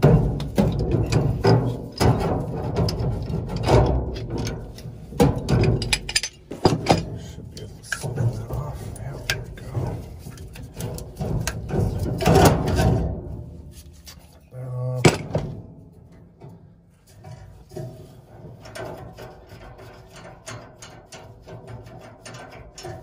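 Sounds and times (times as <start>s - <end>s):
small metal clicks and rattles: 0.0s - 13.0s, 16.0s - 23.0s
metal parts scraping: 0.7s - 13.0s.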